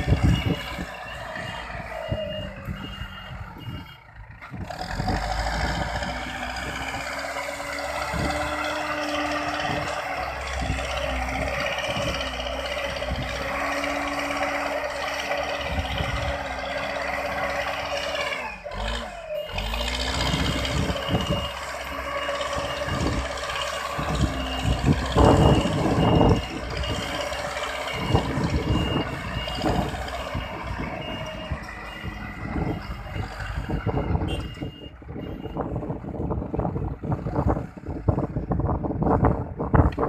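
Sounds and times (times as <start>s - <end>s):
reversing alarm beeping: 0.0s - 4.1s, 6.3s - 35.8s
diesel engine running: 0.0s - 40.0s.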